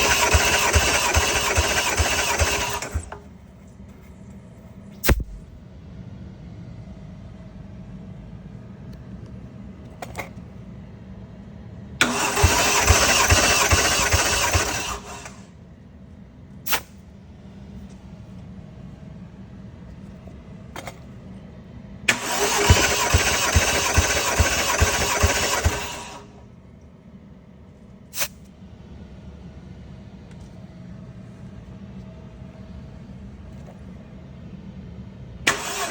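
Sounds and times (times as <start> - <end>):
engine cranking on starter: 0.0 - 3.3, 12.0 - 15.5, 22.1 - 26.4, 35.5 - 35.9
short sharp sounds: 5.0 - 5.6.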